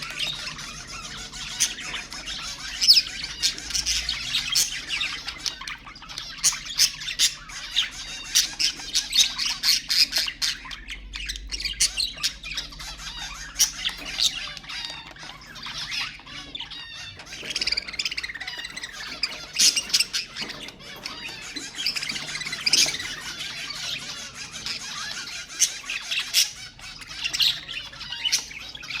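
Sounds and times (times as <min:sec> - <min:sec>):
budgerigars chirping and squawking: 0:00.0 - 0:29.0.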